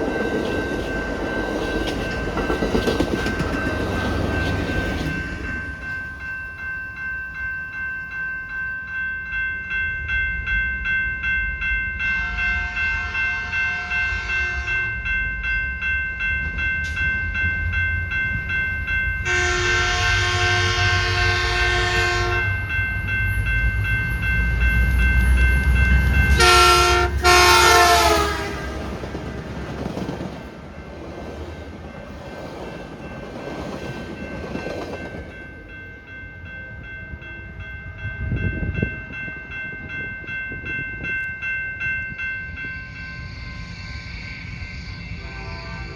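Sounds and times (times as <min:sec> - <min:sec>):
train rumble: 0:00.0 - 0:07.4, 0:16.1 - 0:45.9
bell ringing: 0:00.0 - 0:20.0
locomotive horn blasts: 0:12.2 - 0:14.7, 0:19.3 - 0:22.6, 0:26.3 - 0:29.0, 0:45.2 - 0:45.9.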